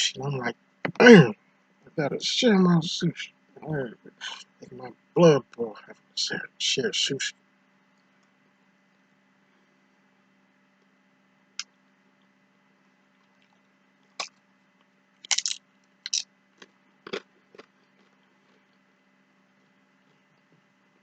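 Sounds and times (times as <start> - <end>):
faint steady hum: 0.0 - 21.0
person crunching food: 15.2 - 18.8.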